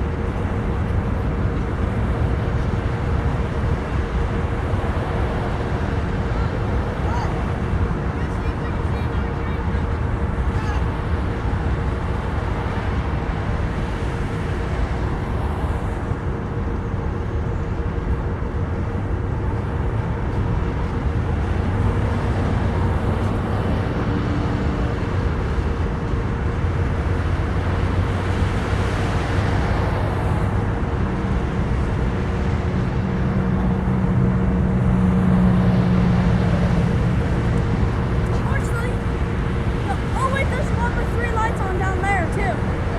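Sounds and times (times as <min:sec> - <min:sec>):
freight train rumbling past: 0:00.0 - 0:42.9.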